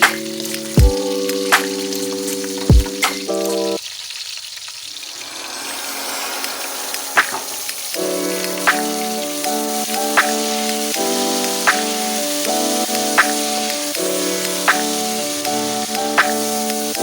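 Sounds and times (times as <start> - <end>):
background music: 0.0 - 3.8, 5.0 - 17.0
food sizzling in oil: 0.0 - 17.0.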